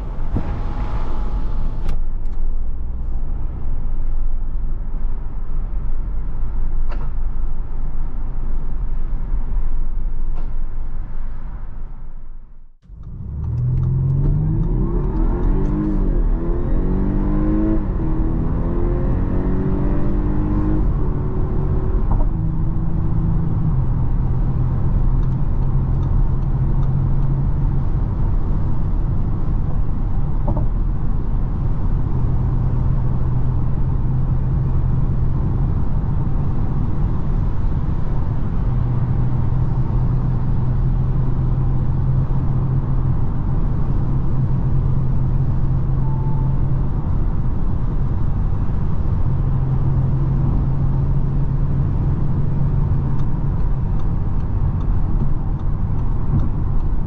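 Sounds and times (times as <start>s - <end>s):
wind noise: 0.0s - 2.3s
car engine accelerating: 0.0s - 4.1s, 12.8s - 57.0s.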